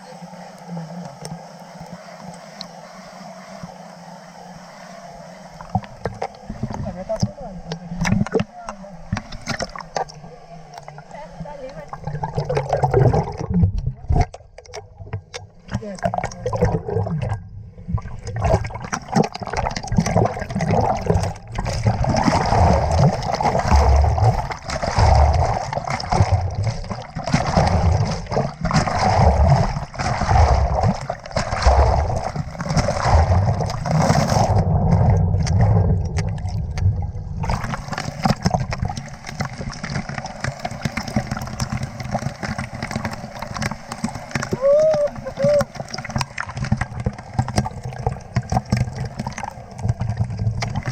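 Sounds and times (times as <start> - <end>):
water splashing and gurgling: 0.0 - 50.9.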